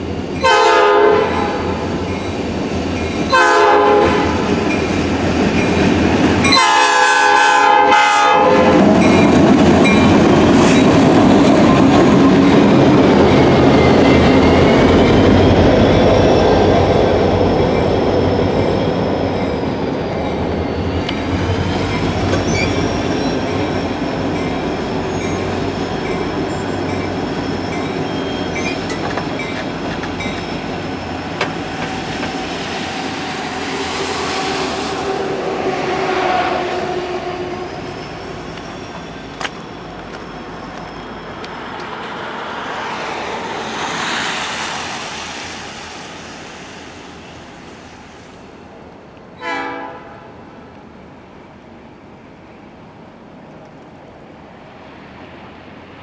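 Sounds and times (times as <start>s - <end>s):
train wheels clickety-clack: 1.5s - 7.0s, 8.4s - 16.2s, 21.0s - 35.2s, 38.5s - 42.2s
high wheel squeal: 11.8s - 48.7s.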